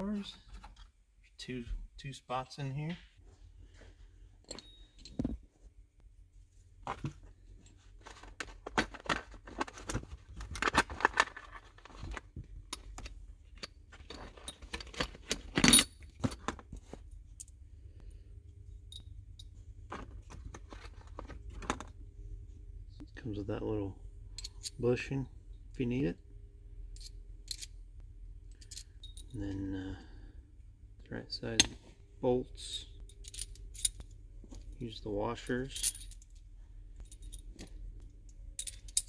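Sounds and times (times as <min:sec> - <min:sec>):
metal bolts clinking and rattling: 0:04.4 - 0:05.4, 0:07.6 - 0:16.7, 0:24.3 - 0:25.1, 0:26.9 - 0:27.8, 0:28.5 - 0:29.6, 0:32.6 - 0:39.0.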